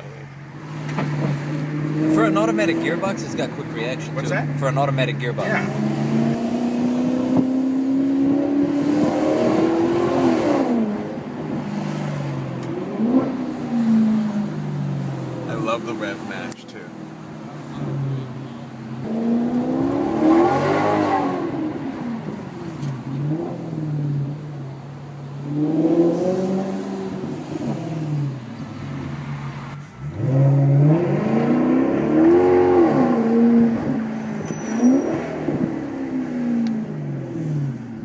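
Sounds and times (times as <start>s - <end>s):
car engine revving: 0.0s - 38.0s.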